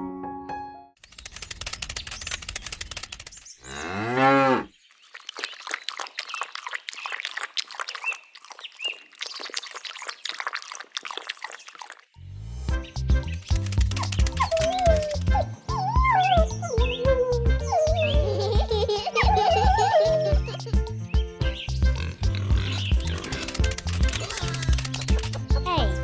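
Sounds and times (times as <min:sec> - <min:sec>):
cow mooing: 0:03.6 - 0:04.7.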